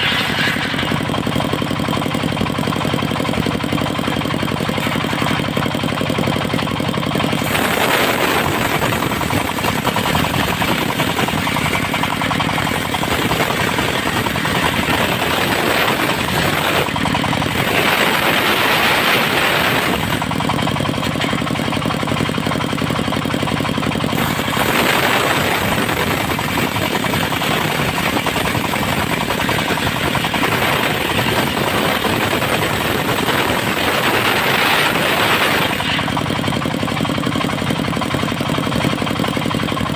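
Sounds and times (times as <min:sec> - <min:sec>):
circular saw blade cutting logs: 0:00.0 - 0:39.6
diesel engine running: 0:00.0 - 0:39.9.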